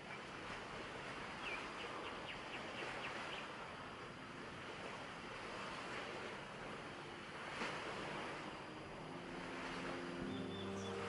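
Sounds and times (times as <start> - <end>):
rushing wind or surf: 0.0 - 11.0
bird chirping: 10.1 - 11.0.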